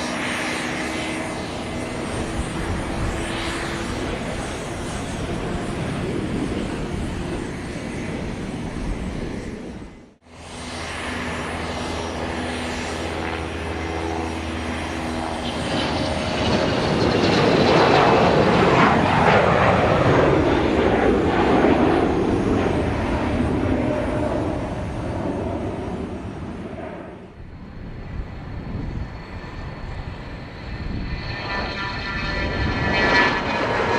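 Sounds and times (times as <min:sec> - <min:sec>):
aircraft engine hum: 0:00.0 - 0:33.9.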